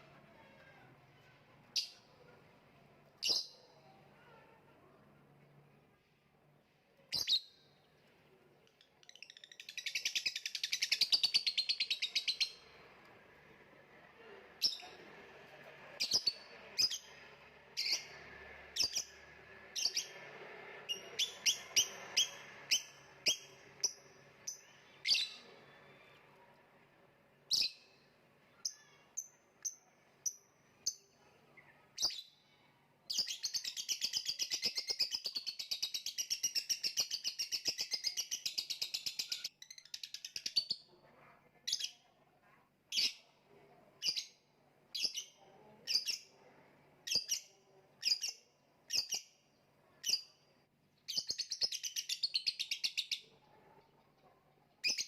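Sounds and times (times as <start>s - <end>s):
lovebird chirping and trilling: 3.2s - 3.8s, 7.1s - 7.6s, 16.0s - 17.1s, 20.9s - 25.5s, 45.0s - 46.3s, 47.1s - 49.3s, 51.1s - 53.2s.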